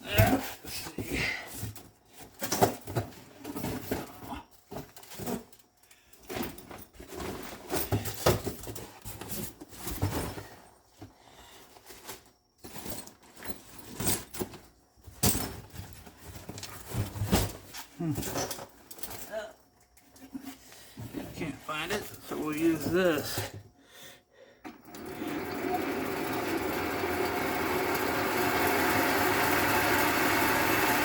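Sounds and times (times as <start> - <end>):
objects clattering and knocking: 0.0 - 23.7.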